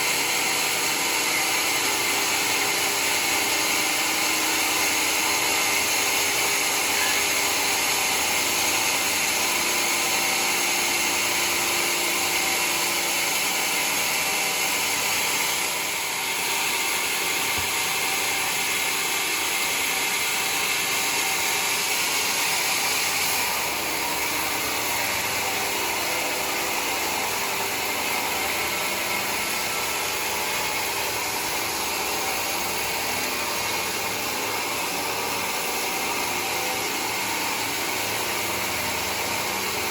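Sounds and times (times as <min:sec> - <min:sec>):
sawmill cutting wood: 0:00.0 - 0:39.9.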